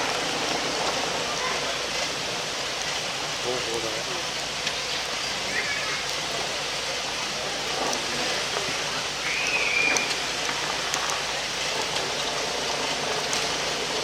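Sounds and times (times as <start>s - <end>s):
flowing water rushing: 0.0s - 14.0s
short whistle-like call: 9.2s - 10.2s.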